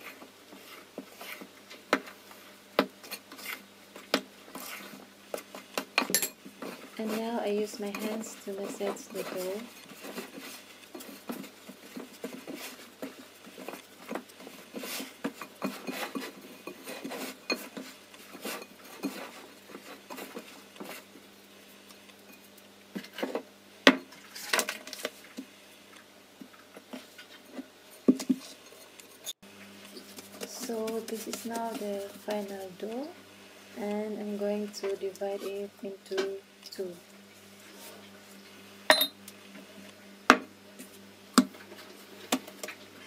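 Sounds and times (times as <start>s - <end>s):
hands kneading sticky dough: 29.8s - 32.8s
glass bowl knocking and clinking: 38.9s - 39.2s.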